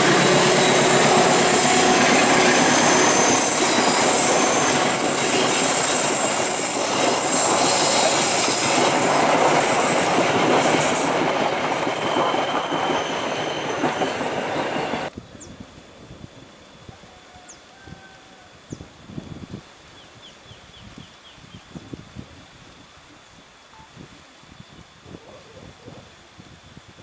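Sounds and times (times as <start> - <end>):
train wheels rumbling on rails: 0.0 - 15.1
high-pitched wheel squeal: 0.3 - 15.1.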